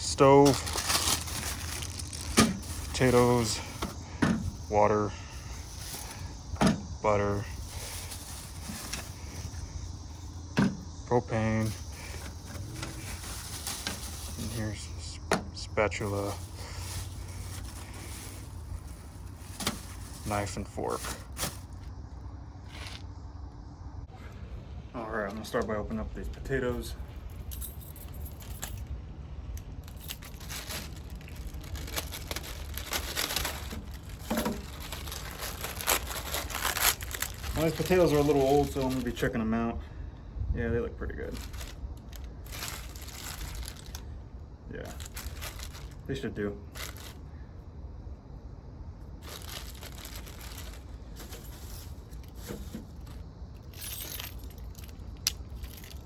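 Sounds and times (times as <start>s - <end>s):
plastic bag crinkling: 0.0s - 6.6s, 7.3s - 9.9s, 11.6s - 14.9s, 15.9s - 21.9s, 29.6s - 39.4s, 41.1s - 44.1s, 44.8s - 47.2s, 49.1s - 56.0s.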